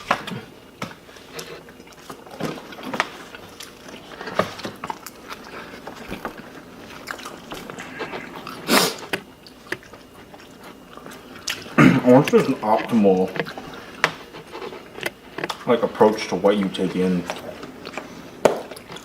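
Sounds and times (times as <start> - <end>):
chewing and biting: 0.0 - 15.7, 17.2 - 19.0.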